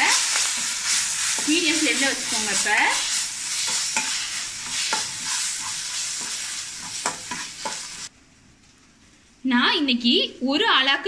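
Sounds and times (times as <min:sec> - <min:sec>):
food sizzling in oil: 0:00.0 - 0:08.1
spatula scraping a metal pan: 0:00.0 - 0:08.1.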